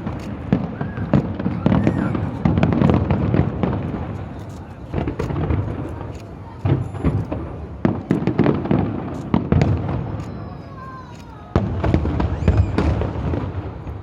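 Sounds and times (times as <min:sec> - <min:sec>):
loud firework bang: 0:00.0 - 0:04.1, 0:04.9 - 0:10.2, 0:11.5 - 0:14.0
firework shell bursts and crackling: 0:00.0 - 0:14.0
falling firework whistle: 0:00.5 - 0:03.1, 0:09.4 - 0:14.0.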